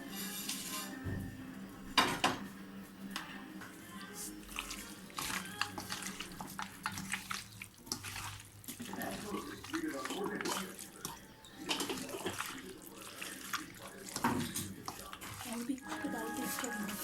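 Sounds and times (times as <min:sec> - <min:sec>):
wet splashing: 0:04.5 - 0:17.0.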